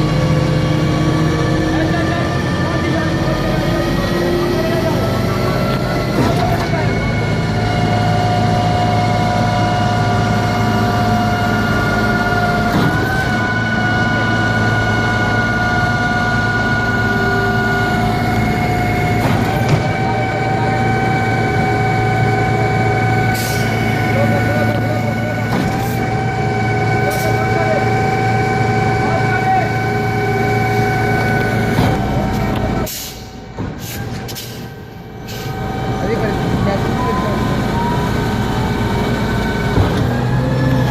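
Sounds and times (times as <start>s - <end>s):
low engine hum: 0.0s - 40.9s
high-pitched pump whine: 1.7s - 32.9s
short air hisses: 32.9s - 34.7s.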